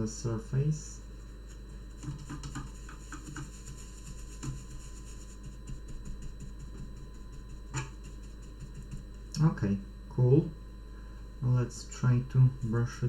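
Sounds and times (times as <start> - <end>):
low mains hum: 0.0 - 13.0
paper towel rubbing circuit board: 1.0 - 9.2, 12.2 - 13.0.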